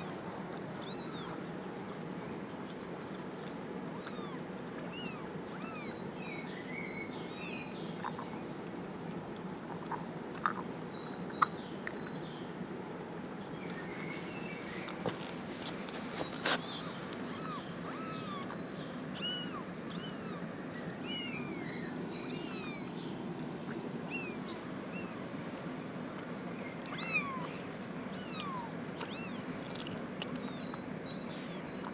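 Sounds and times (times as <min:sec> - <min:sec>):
low background noise: 0:00.0 - 0:31.9
kittens mewing: 0:00.7 - 0:01.4, 0:03.9 - 0:06.0, 0:14.7 - 0:23.0, 0:26.9 - 0:29.9.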